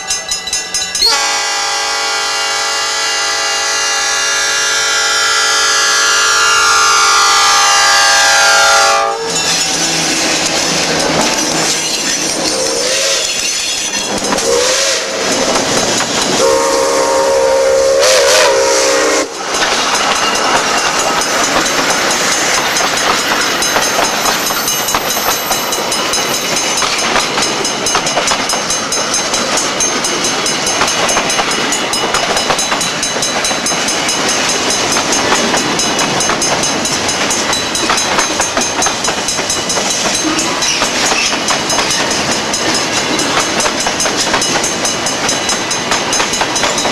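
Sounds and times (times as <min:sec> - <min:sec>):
steam locomotive whistle: 0:01.0 - 0:09.4, 0:12.5 - 0:13.5, 0:14.4 - 0:15.4, 0:16.4 - 0:19.4
train wheels clickety-clack: 0:09.2 - 0:46.9.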